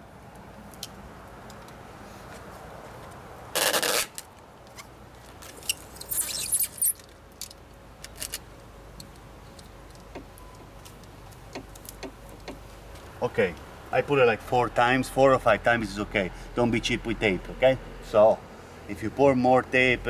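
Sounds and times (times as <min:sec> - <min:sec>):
tape tearing off roll: 0:03.5 - 0:07.1.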